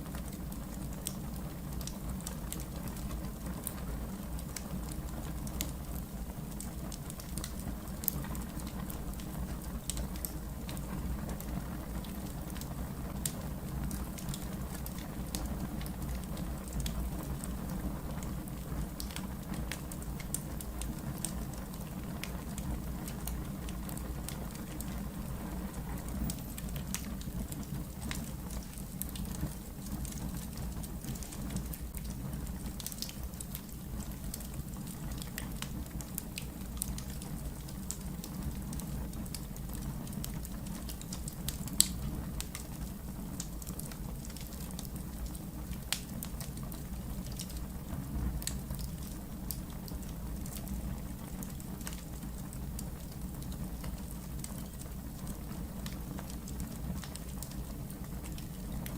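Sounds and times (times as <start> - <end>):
wood fire crackling and popping: 0.0 - 58.9.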